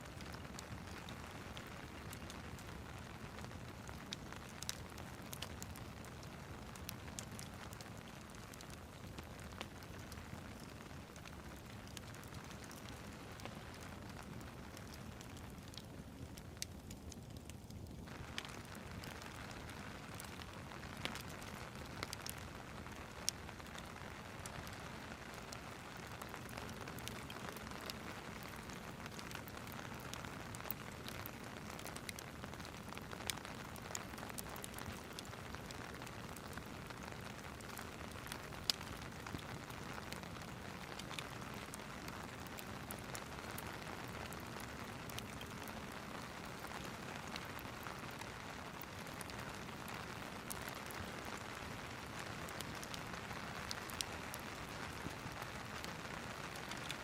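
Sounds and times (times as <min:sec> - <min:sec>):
steady rain: 0:00.0 - 0:57.0
wood fire crackling: 0:00.0 - 0:57.0.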